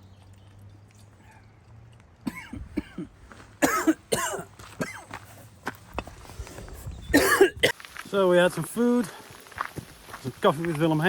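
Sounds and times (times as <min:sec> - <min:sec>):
person clearing throat: 0:02.2 - 0:05.1, 0:07.1 - 0:07.7
person coughing: 0:02.2 - 0:05.1, 0:07.1 - 0:07.7.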